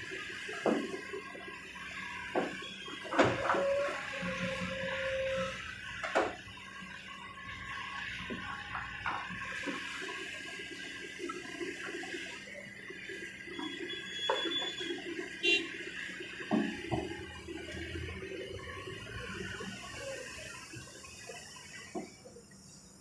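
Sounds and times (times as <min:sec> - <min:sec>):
excavator diesel engine running: 0:00.0 - 0:22.3.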